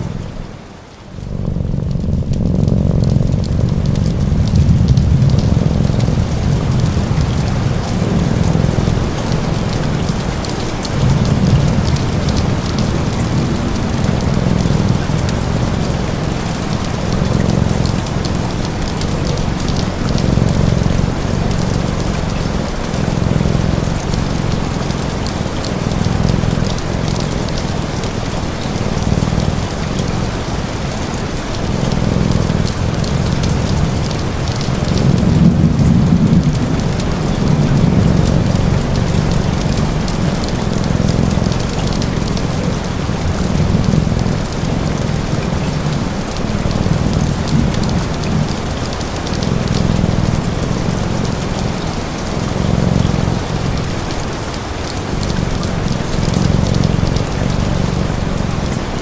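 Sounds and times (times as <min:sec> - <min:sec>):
low rumble: 0:00.0 - 0:27.5
heavy rain: 0:00.0 - 0:59.0.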